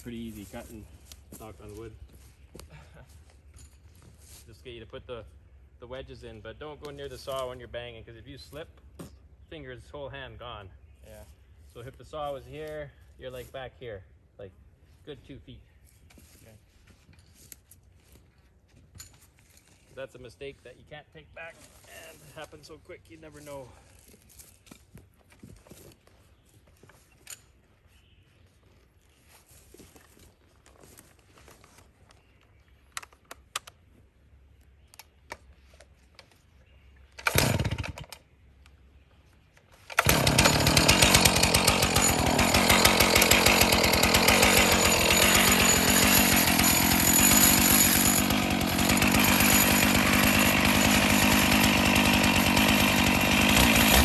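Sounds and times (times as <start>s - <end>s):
chainsaw running at high revs: 37.2s - 38.0s, 39.9s - 54.0s.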